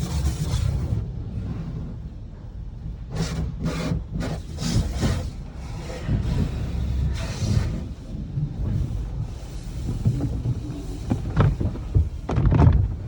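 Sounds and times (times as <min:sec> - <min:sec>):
car wash low rumble: 0:00.0 - 0:13.0
brushes swishing across car: 0:08.6 - 0:12.4.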